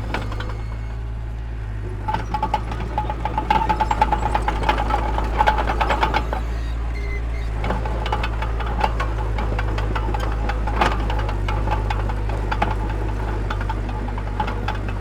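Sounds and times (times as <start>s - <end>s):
diesel machine droning: 0.0s - 15.0s
rapid metallic clanking with whine: 0.0s - 15.0s.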